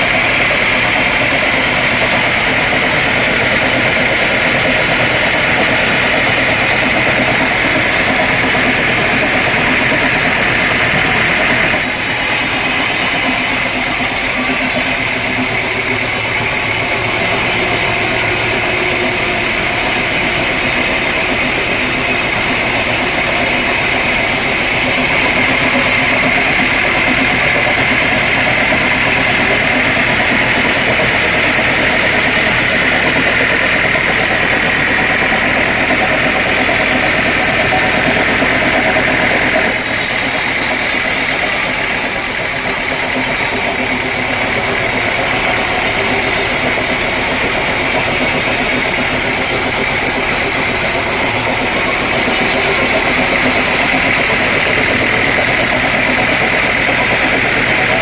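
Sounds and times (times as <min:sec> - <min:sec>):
machinery motor noise: 0:00.0 - 0:58.0
sawmill saw high whine: 0:00.0 - 0:58.0.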